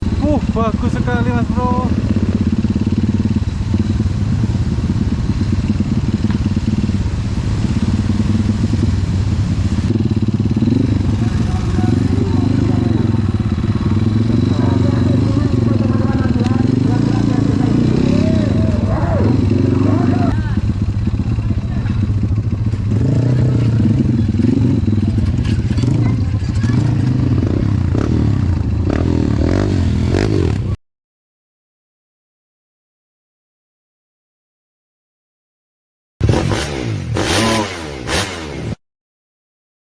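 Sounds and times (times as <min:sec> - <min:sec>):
motorcycle engine idling: 0:00.0 - 0:30.8.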